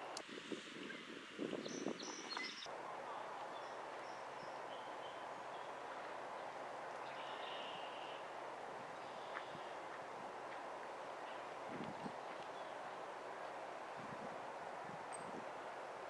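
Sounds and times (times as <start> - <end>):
outdoor background noise: 0.0 - 16.0
faint bird chirps: 7.0 - 8.3.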